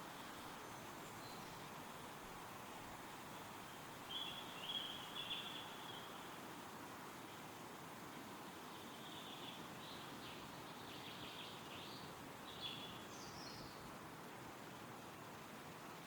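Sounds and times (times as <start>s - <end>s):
wind rustling through trees: 0.0s - 16.0s
bird chirping: 0.1s - 1.7s, 3.7s - 6.3s, 8.7s - 13.8s.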